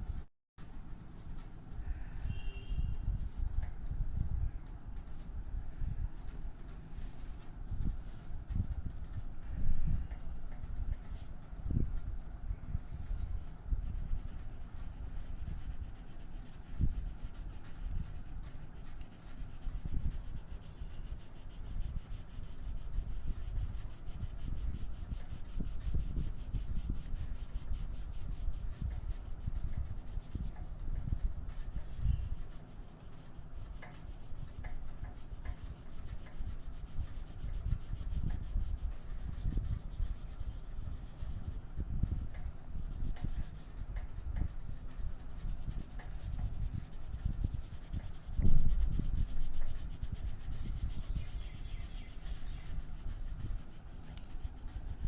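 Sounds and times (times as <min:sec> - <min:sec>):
colouring strokes on paper: 0:12.8 - 0:55.0.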